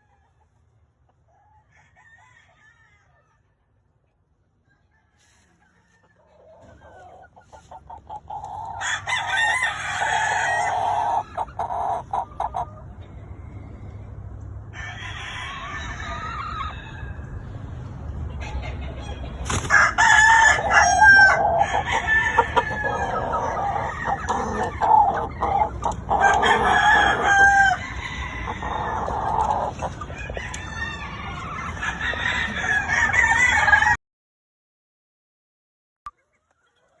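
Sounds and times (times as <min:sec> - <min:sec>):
roosters crowing: 0:01.3 - 0:03.6, 0:04.7 - 0:17.8, 0:18.5 - 0:34.0
chickens clucking: 0:03.0 - 0:14.2, 0:15.0 - 0:34.0, 0:36.1 - 0:37.0.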